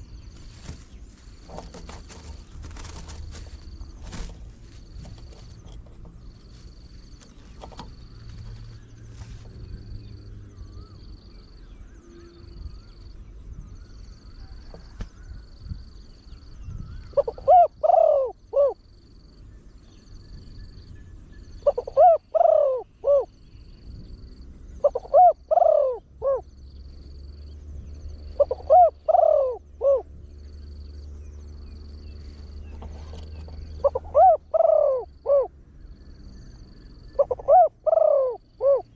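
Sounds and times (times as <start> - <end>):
dove cooing: 0.0 - 11.0, 16.8 - 18.8, 21.6 - 23.4, 24.7 - 26.5, 28.2 - 30.2, 32.3 - 35.6, 36.2 - 38.9.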